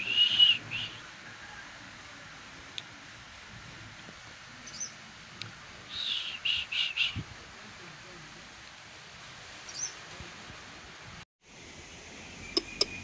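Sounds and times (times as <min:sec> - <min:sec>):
small bird chirping: 0:04.6 - 0:05.0, 0:11.9 - 0:13.0.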